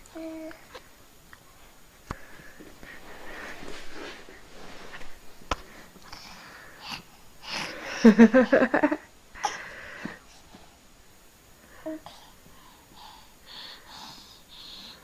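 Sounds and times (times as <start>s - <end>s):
wheezy breathy huffing: 5.7s - 8.5s, 11.8s - 15.0s.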